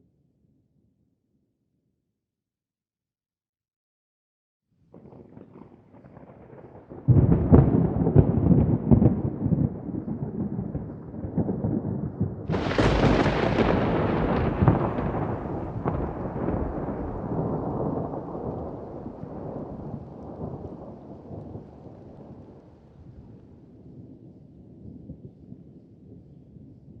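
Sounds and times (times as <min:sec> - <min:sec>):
thunder rumbling: 0:04.9 - 0:25.6
sharp thunderclap: 0:05.0 - 0:22.5
heavy rain: 0:06.3 - 0:23.6.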